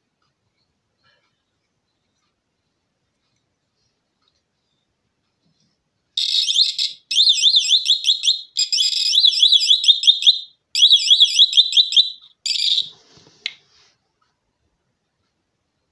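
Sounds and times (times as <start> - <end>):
warbling alarm siren: 6.2 - 12.9.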